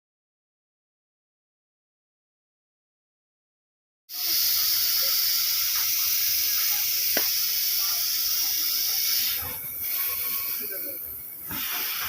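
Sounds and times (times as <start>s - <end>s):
high hiss of pressurized gas: 4.1s - 12.0s.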